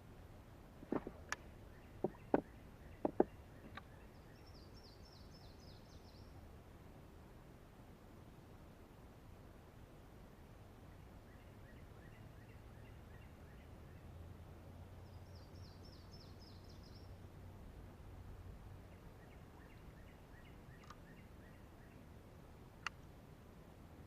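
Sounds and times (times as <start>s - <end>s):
low steady hum: 0.0s - 24.0s
faint birdsong: 0.8s - 6.7s, 10.5s - 24.0s.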